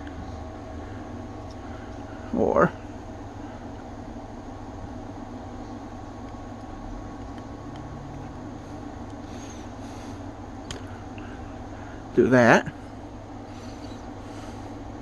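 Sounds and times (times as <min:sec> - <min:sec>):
low droning hum: 0:00.0 - 0:15.0.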